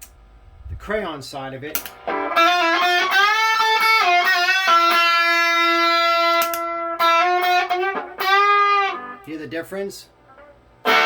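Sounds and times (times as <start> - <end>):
overdriven electric guitar lead: 1.8 - 9.6, 10.2 - 11.0.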